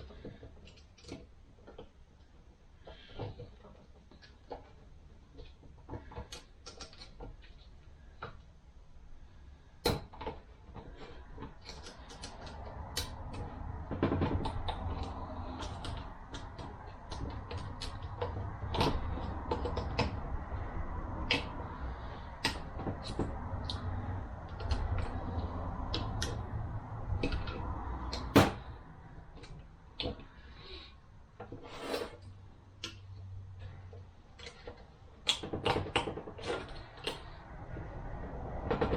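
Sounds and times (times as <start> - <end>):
metal parts clicking and knocking: 0.0 - 8.5, 9.8 - 30.8, 31.4 - 38.9
rubbing scraping noise: 31.5 - 32.3.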